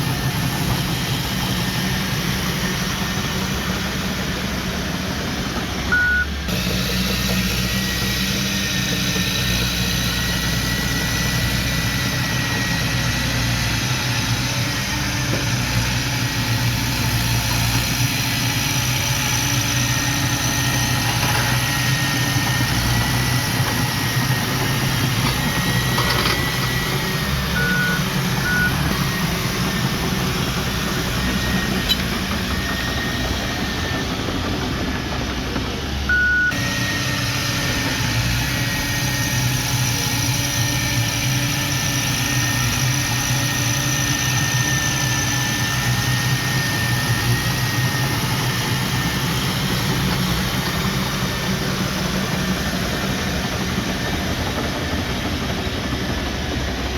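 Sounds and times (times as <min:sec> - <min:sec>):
heavy diesel engine running: 0:00.0 - 0:56.9
short beeps: 0:05.9 - 0:06.4, 0:27.6 - 0:28.9, 0:36.1 - 0:36.6.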